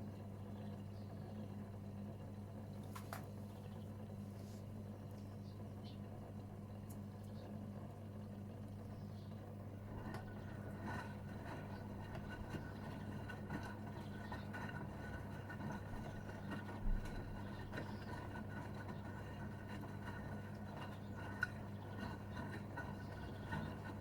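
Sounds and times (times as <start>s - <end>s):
washing machine humming: 0.0s - 24.0s.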